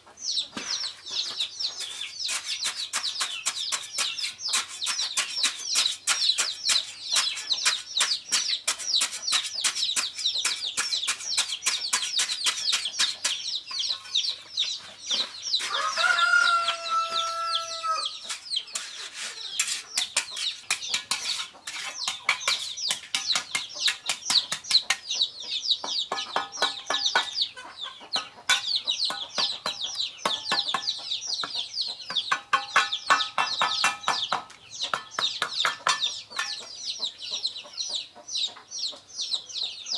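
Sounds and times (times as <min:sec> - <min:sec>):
chickens clucking: 0:00.0 - 0:39.9
chicks peeping: 0:00.0 - 0:39.9
rooster crowing: 0:15.6 - 0:18.2.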